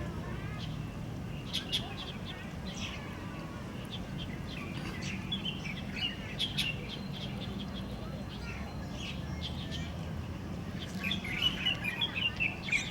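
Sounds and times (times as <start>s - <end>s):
birds chirping: 0.4s - 10.0s.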